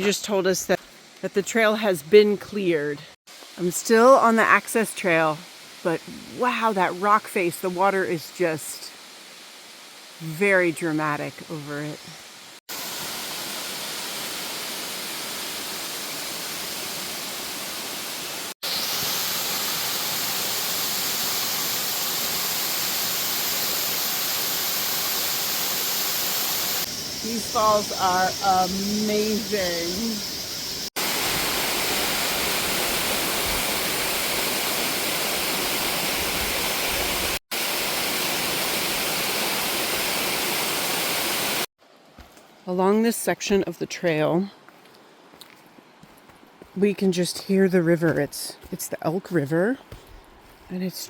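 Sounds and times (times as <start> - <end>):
waterfall rushing: 12.7 - 30.0, 31.0 - 41.7.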